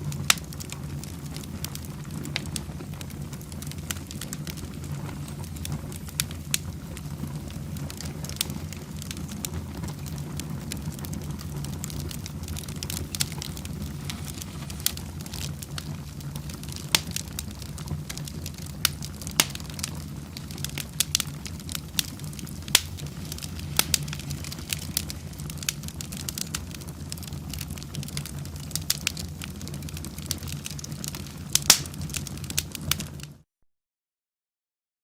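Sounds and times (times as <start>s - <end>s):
wood fire crackling: 0.0s - 33.4s
sharp pops and snaps: 11.4s - 29.2s, 29.9s - 33.1s.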